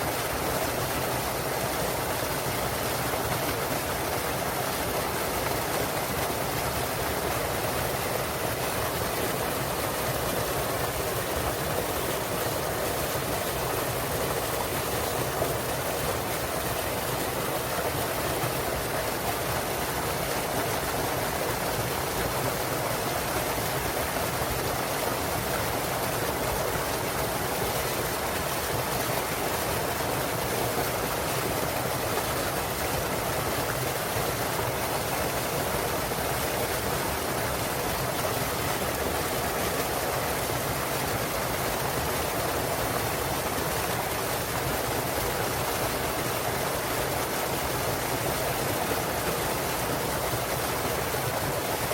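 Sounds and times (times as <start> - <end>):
small waterfall splashing: 0.0 - 51.9.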